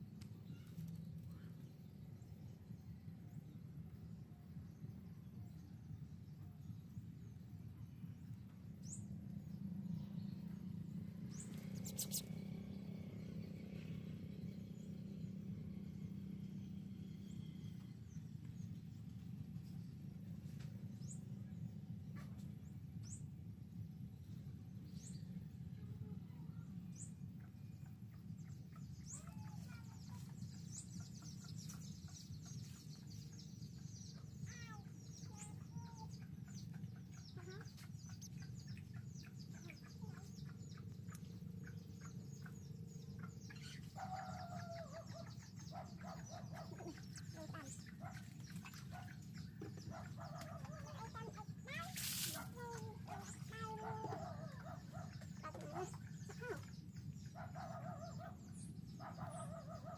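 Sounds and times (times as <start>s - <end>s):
steady low hum: 0.0s - 59.9s
finches chirping: 11.3s - 12.5s
lower bird calls: 11.3s - 13.5s.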